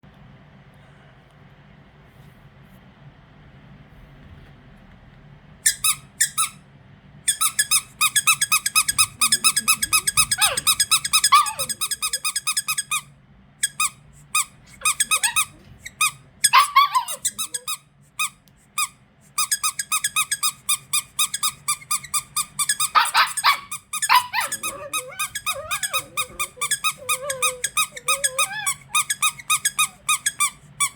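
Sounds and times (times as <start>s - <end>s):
squeaky dog toy squeaking: 5.6s - 6.6s, 7.3s - 30.9s.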